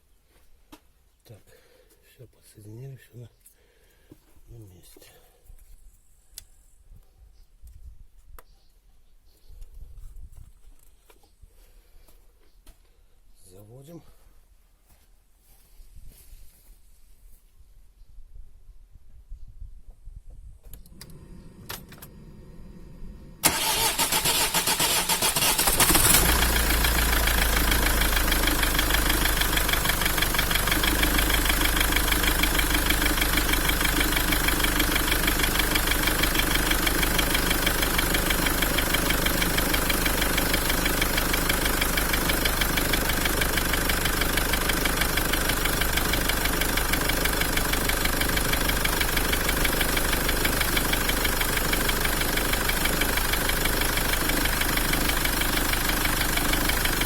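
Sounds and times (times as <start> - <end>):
starter cranking diesel engine: 20.9 - 57.0
diesel engine idling: 21.0 - 57.0.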